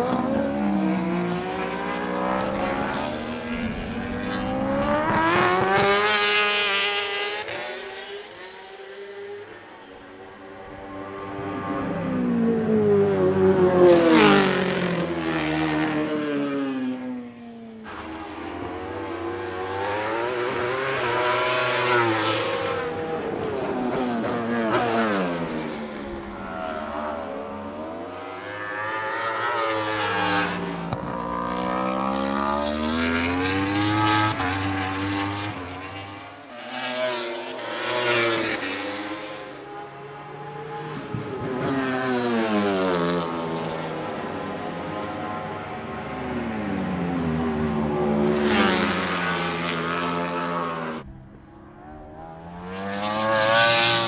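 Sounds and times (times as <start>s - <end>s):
motorcycles passing by: 0.0s - 8.4s, 10.5s - 54.0s
race motorcycle engines revving: 43.7s - 54.0s.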